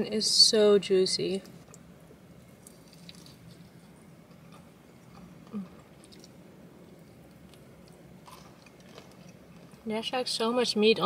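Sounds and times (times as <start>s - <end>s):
breading crackling: 2.5s - 10.4s
chewing crispy fried chicken: 2.6s - 9.9s.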